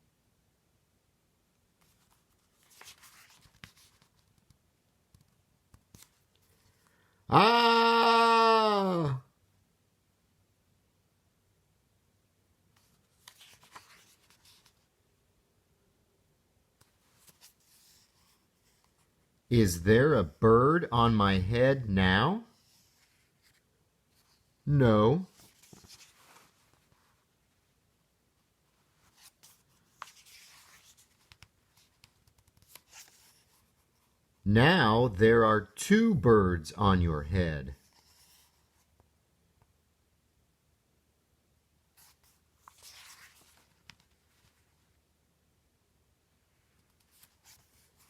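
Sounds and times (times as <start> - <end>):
paper pages rustling: 1.8 - 6.9, 12.8 - 14.9, 16.8 - 19.2, 25.3 - 27.6, 28.7 - 34.2, 37.8 - 39.1, 41.9 - 45.0, 46.6 - 48.0.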